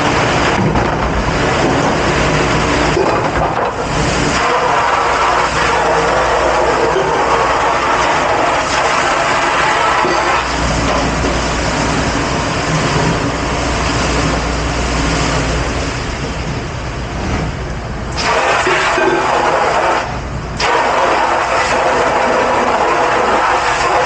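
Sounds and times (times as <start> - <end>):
dish machine running: 0.0 - 24.0
water spray: 1.2 - 12.9, 18.2 - 24.0.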